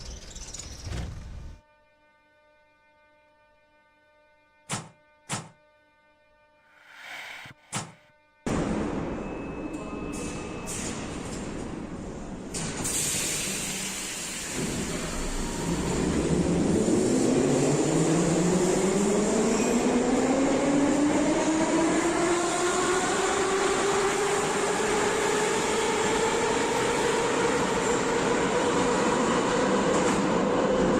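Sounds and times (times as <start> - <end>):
train motor whine rising: 6.7 - 8.1.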